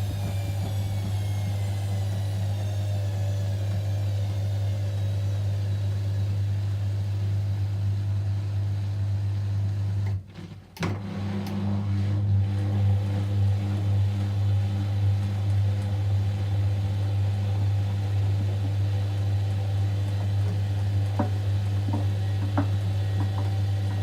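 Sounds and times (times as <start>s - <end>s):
motor whine falling in pitch: 0.0s - 8.4s
washing machine motor hum: 0.0s - 24.0s.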